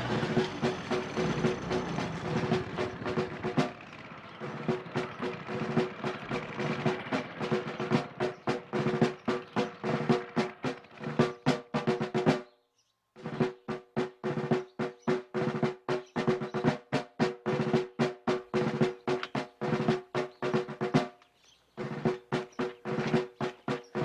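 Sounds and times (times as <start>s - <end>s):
snare drum rapid strokes: 0.0s - 12.4s, 13.3s - 21.2s, 21.8s - 24.0s.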